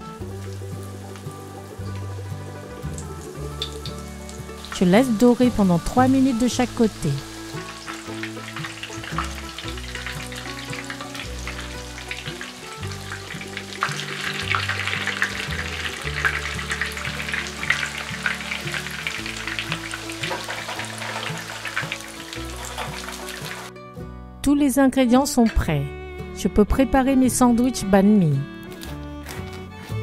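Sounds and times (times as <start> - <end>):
chicken frying in hot oil: 0.0 - 23.7
light background music: 0.0 - 30.0.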